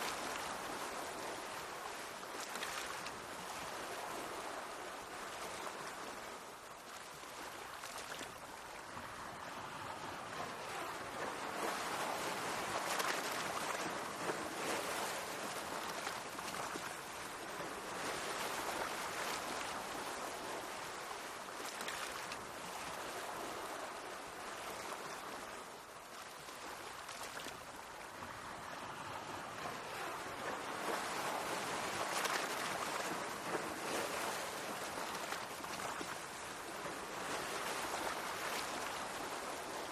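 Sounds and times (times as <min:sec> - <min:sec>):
sea waves washing on shore: 0:00.0 - 0:39.9.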